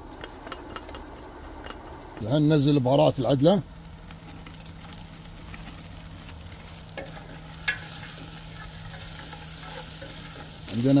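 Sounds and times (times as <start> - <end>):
steady low hum: 0.0 - 11.0
food sizzling in a pot: 2.4 - 11.0.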